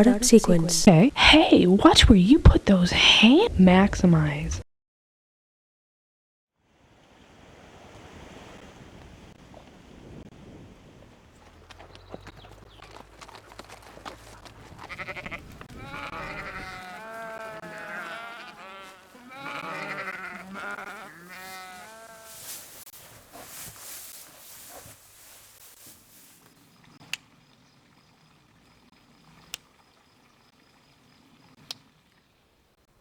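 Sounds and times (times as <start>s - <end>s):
low rumble of wind or surf: 6.6s - 12.2s
livestock bleating: 14.8s - 22.9s.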